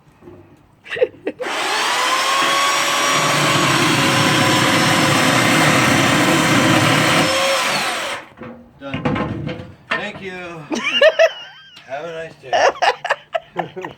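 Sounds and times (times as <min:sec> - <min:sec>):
chainsaw cutting wood: 0:01.4 - 0:08.3.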